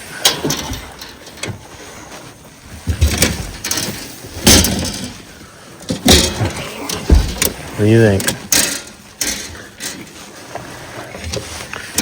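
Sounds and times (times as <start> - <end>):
sharp knocks and thumps: 2.7 - 5.3, 5.9 - 9.6.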